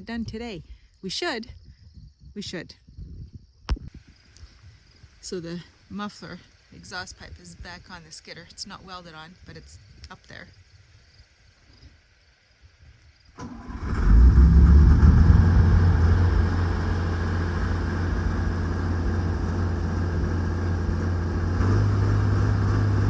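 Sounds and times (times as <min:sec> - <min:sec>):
diesel engine starting and running: 0:13.4 - 0:23.0.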